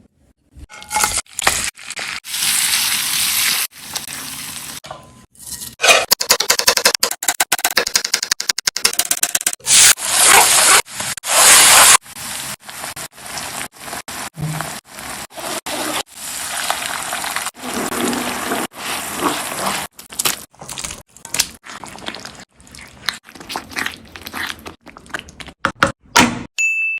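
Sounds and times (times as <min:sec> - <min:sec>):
scrapes and clinks in a pan: 0:00.7 - 0:01.3
food sizzling in a pan: 0:00.8 - 0:04.8, 0:09.7 - 0:19.8.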